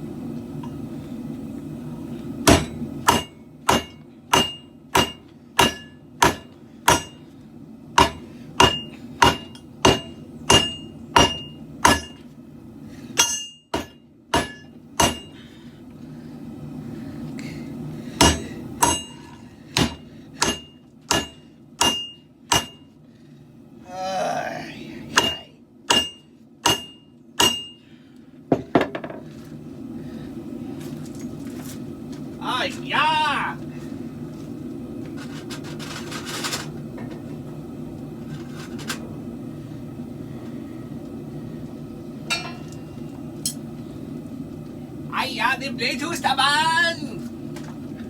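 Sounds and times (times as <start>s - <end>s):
hammer striking steel: 2.4s - 7.2s, 8.0s - 12.2s, 13.2s - 15.4s, 18.2s - 22.9s, 25.1s - 27.8s, 42.3s - 42.9s.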